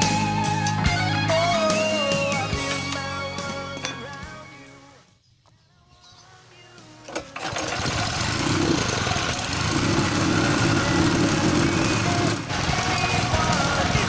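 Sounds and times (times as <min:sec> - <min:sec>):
small engine running loud: 0:07.4 - 0:14.0.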